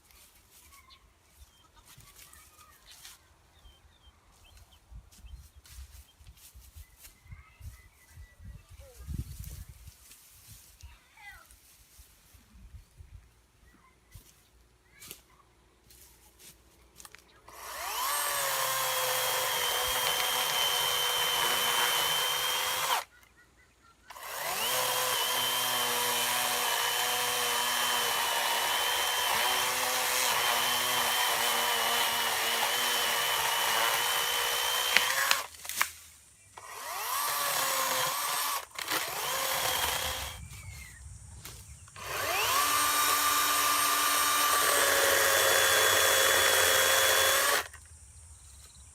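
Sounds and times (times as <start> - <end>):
electric chainsaw cutting wood: 17.5 - 23.1, 24.1 - 35.9, 36.6 - 40.4, 41.9 - 47.8.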